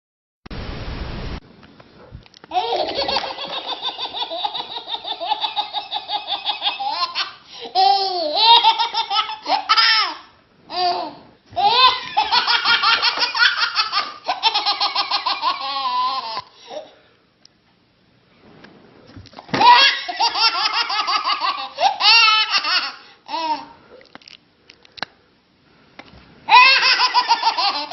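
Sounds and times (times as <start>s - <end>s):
small child laughing: 2.5s - 17.0s, 19.6s - 23.8s, 26.5s - 27.9s.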